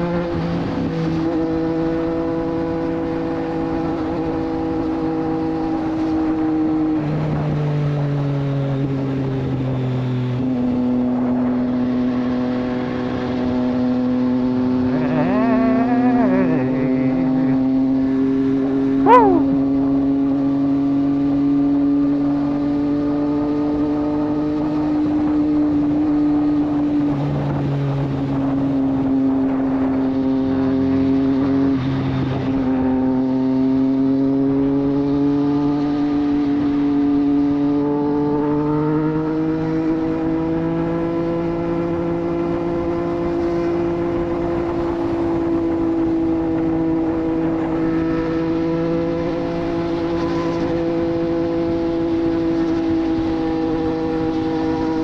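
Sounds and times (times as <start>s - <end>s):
motorcycle engine cruising: 0.0s - 55.0s
wavering tone: 14.9s - 18.0s, 19.0s - 19.7s.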